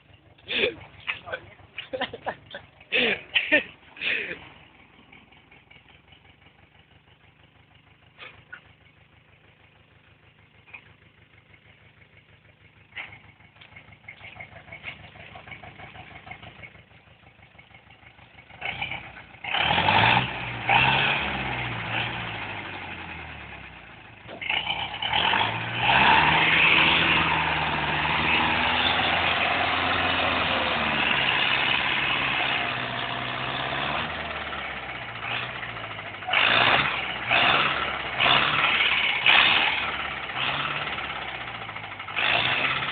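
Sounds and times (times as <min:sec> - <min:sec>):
tractor engine idling and revving: 0:00.0 - 0:42.9
engine knocks: 0:04.4 - 0:20.0.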